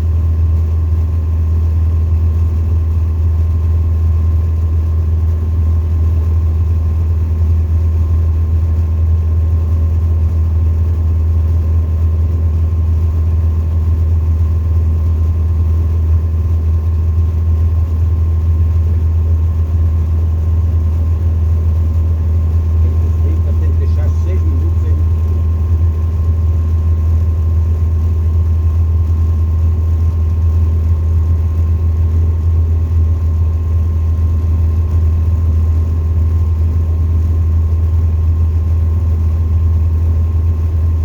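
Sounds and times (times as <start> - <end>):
light aircraft engine droning: 4.4 - 41.0.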